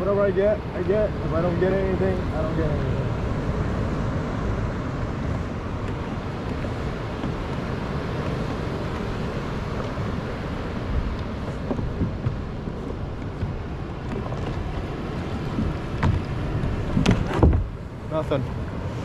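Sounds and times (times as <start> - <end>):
water: 0.0 - 19.0
wind rumble on microphone: 0.0 - 19.0.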